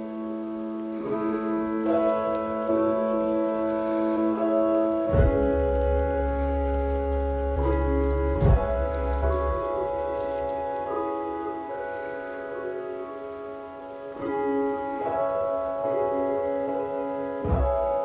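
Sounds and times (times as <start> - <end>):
instrumental music of held chords: 0.0 - 18.0
deep bass note: 5.1 - 10.3.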